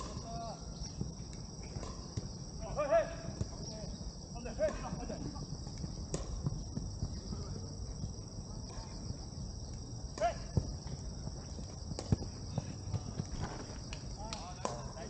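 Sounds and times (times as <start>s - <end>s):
insects chorus: 0.0s - 15.0s
distant shout: 2.6s - 5.6s, 10.1s - 10.7s.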